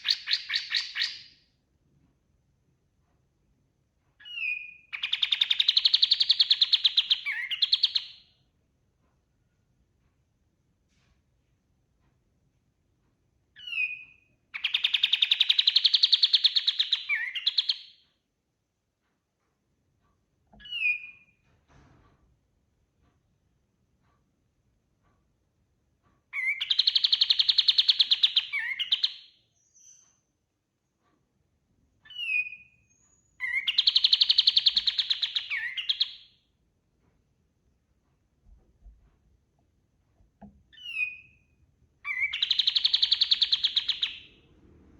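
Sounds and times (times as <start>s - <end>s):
songbird singing trill: 0.0s - 1.3s, 4.2s - 8.2s, 13.6s - 18.0s, 26.4s - 30.2s, 32.1s - 36.3s, 40.7s - 44.4s
songbird call and trill: 26.4s - 30.3s, 32.1s - 36.2s, 42.1s - 44.3s.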